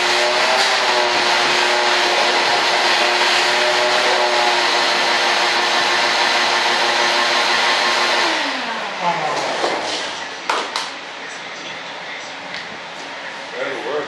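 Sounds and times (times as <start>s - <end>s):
hissing grinding cut: 0.0s - 8.6s
rotary cutting tool whining: 0.0s - 10.1s.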